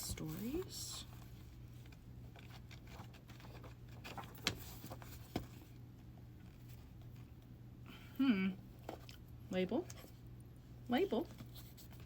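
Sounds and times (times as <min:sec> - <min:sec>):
low steady hum: 0:00.0 - 0:12.0
book pages turning: 0:00.1 - 0:05.6.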